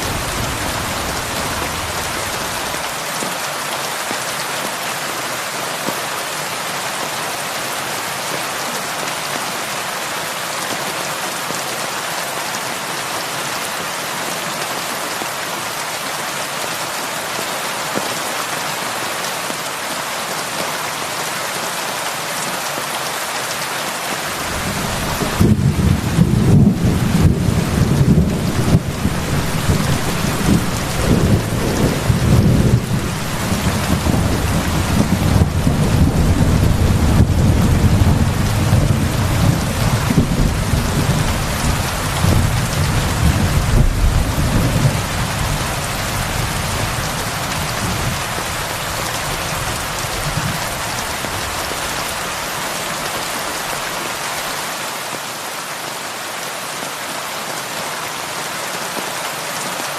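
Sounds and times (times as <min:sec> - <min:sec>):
heavy rain: 0:00.0 - 0:59.9
low rumble of thunder: 0:24.4 - 0:48.3.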